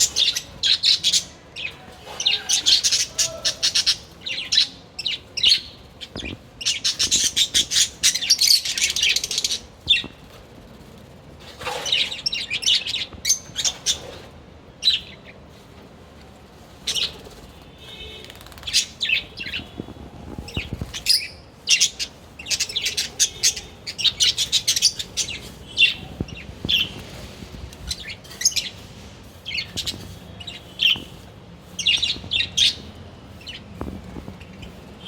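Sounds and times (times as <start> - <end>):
parrots chirping and squawking: 0.0 - 10.2, 11.5 - 15.2, 16.8 - 31.2, 31.8 - 33.6.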